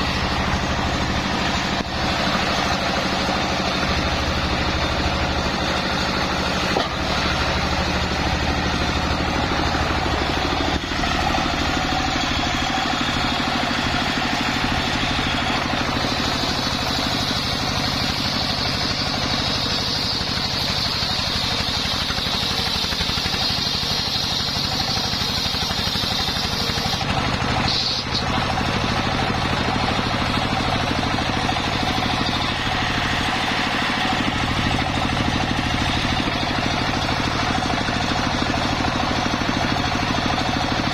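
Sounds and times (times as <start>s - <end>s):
high whine: 0.0s - 22.6s
engine-driven circular saw sawing wood: 0.0s - 40.9s.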